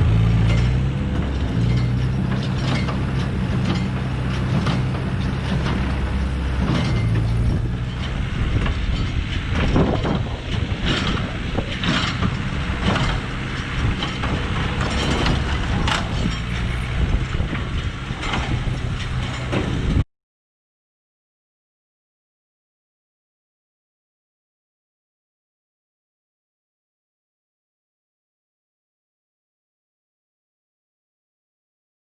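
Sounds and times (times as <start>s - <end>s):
baler mechanism clattering: 0.0s - 20.0s
tractor engine running: 0.0s - 20.0s.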